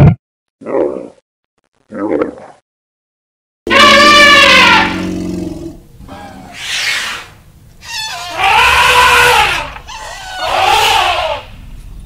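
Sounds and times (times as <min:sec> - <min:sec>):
elephant trumpeting: 0:03.7 - 0:11.5.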